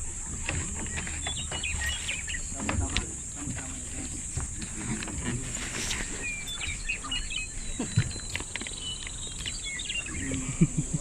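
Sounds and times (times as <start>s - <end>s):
knocks and rustles: 0.0s - 6.2s
birds chirping: 0.0s - 11.0s.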